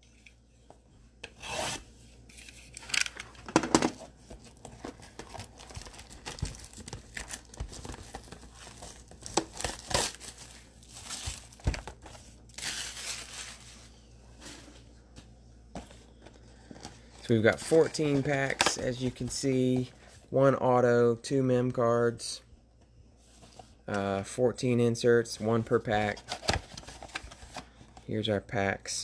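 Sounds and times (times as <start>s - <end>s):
plastic wrap tearing and crinkling: 5.0s - 13.8s.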